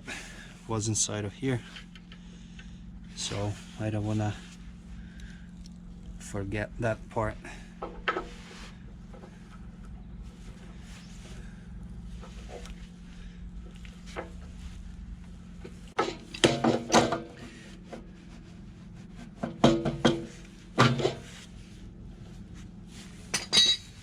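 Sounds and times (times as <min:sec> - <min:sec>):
steady low hum: 0:00.0 - 0:24.0
hose parts knocking and clicking: 0:16.0 - 0:17.4, 0:19.4 - 0:21.3.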